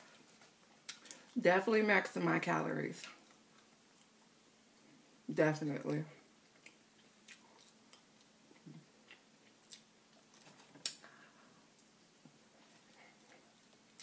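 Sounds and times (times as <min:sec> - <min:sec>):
chewing with mouth clicks: 0:06.5 - 0:11.0.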